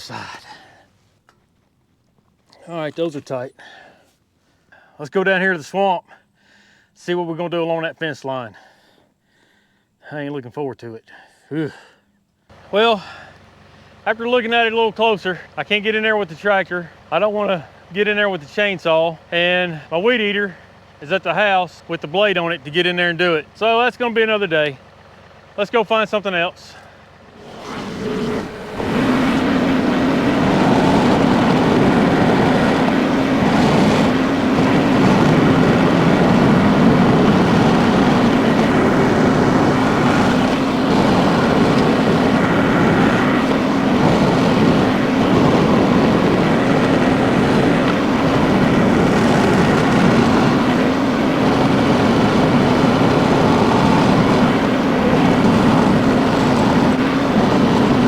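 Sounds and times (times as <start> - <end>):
tractor engine running: 12.5 - 58.0.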